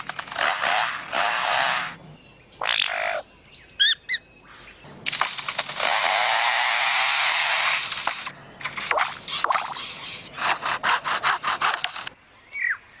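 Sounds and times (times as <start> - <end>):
lyrebird mimicking a chainsaw: 0.0 - 2.0.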